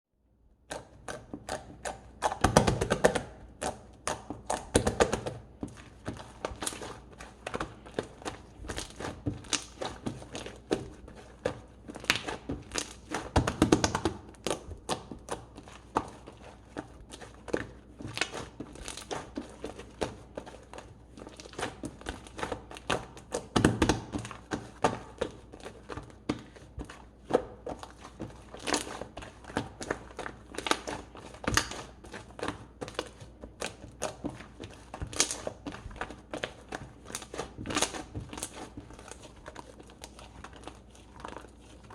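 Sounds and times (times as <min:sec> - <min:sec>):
slime squelching: 0:00.4 - 0:41.9
slime clicking and popping: 0:00.7 - 0:05.5, 0:07.5 - 0:11.0, 0:11.9 - 0:16.2, 0:17.2 - 0:20.2, 0:27.3 - 0:41.5.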